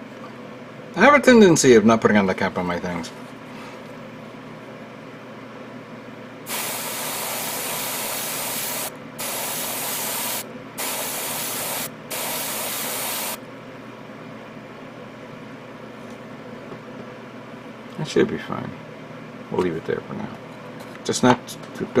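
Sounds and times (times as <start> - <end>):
airbrush spraying: 6.5 - 13.4.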